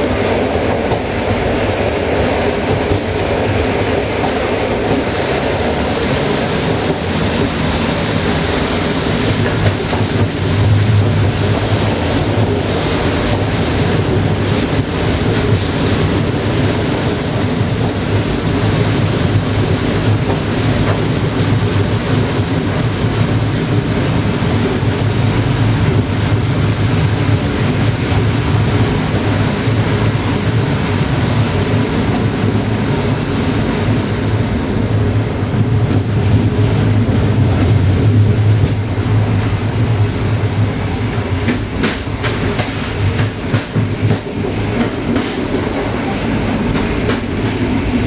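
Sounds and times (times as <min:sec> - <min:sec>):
train wheels rumbling on rails: 0:00.0 - 0:48.0
high wheel squeal: 0:07.5 - 0:10.1, 0:16.8 - 0:18.0, 0:20.5 - 0:24.6.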